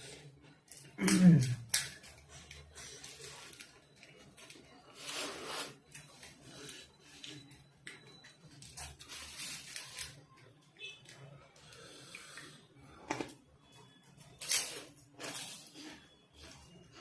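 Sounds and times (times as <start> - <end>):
person breathing: 11.6 - 12.9.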